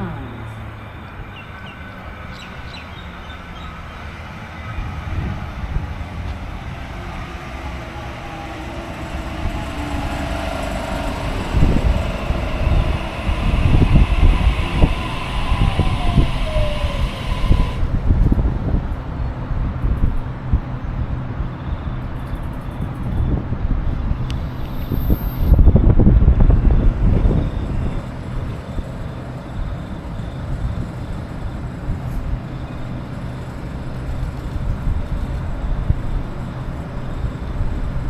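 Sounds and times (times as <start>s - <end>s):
electric train approaching: 0.0s - 38.0s
falling train whine: 0.0s - 38.0s.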